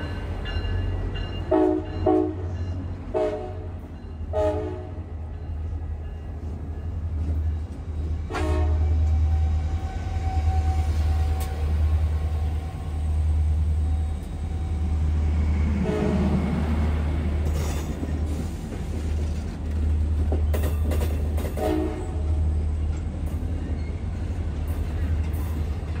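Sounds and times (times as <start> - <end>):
passenger train rumbling: 0.0 - 26.0
train horn blasts: 1.5 - 5.1, 8.3 - 11.9, 15.7 - 16.5, 21.5 - 22.4.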